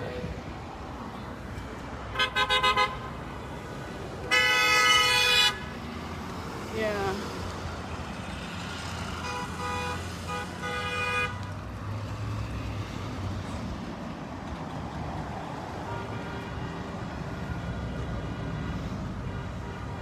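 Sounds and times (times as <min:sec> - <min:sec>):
rumble of passing traffic: 0:00.0 - 0:20.0
car horns honking: 0:02.1 - 0:03.3, 0:04.2 - 0:05.8, 0:09.2 - 0:11.5.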